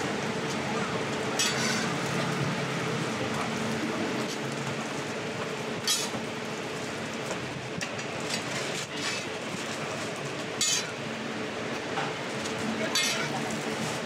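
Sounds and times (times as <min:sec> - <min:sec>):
pancakes sizzling on griddle: 0:01.4 - 0:05.1.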